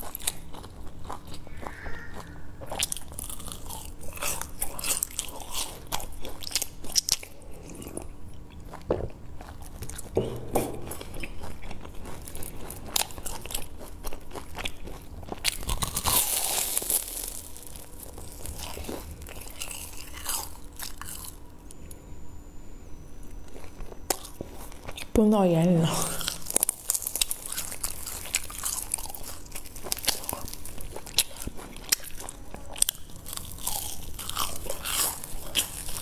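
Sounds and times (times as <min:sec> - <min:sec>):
crunching fried food: 0:00.0 - 0:10.2, 0:10.8 - 0:21.6, 0:23.3 - 0:25.2, 0:26.0 - 0:36.0.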